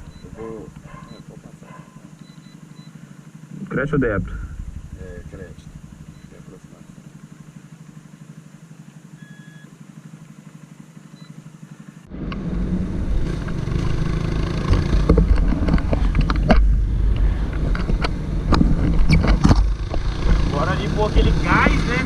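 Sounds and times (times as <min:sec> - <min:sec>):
short electronic beep: 0:00.0 - 0:00.4, 0:06.1 - 0:06.4, 0:09.2 - 0:09.7
motorcycle engine idling: 0:00.0 - 0:12.2.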